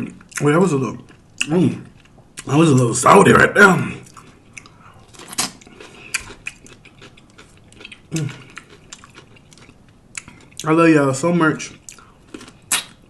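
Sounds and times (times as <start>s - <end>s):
chewing lettuce sandwich: 3.9s - 10.9s.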